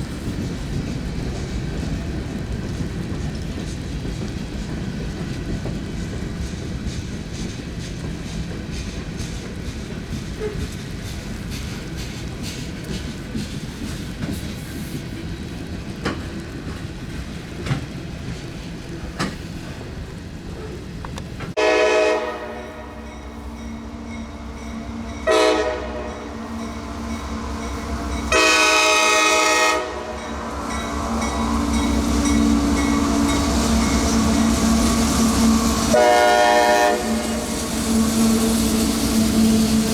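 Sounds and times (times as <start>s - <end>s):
rail rumble: 0.0s - 39.9s
train engine hum: 0.0s - 39.9s
train horn blasts: 21.6s - 39.6s.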